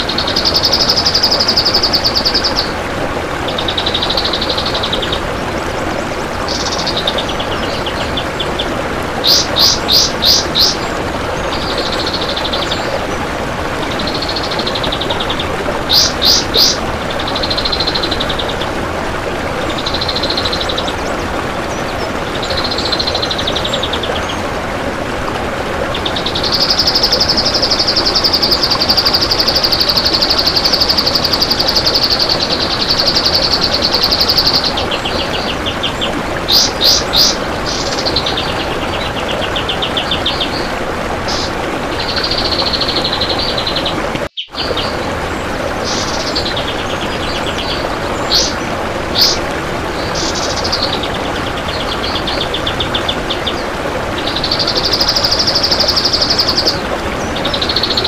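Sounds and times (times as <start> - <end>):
songbird singing rapid trills: 9.2 - 10.8, 15.9 - 16.8.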